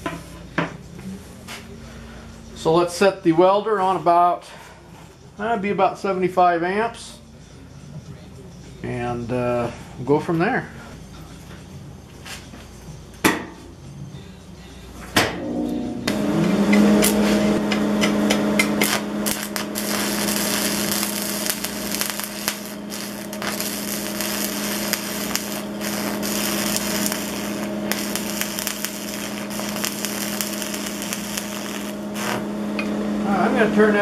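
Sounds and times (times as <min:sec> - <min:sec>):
electrical hum: 0:15.4 - 0:34.0
welding arc crackling: 0:16.1 - 0:33.0.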